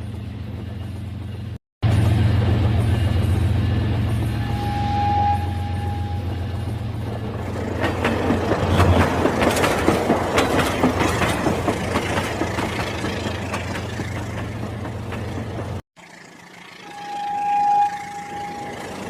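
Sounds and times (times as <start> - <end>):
thin tone: 16.8 - 19.0.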